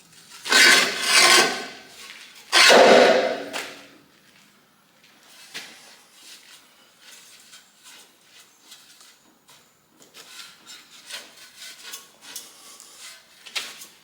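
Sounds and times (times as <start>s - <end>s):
tools scraping and knocking on metal: 0.5s - 1.9s, 2.5s - 3.8s.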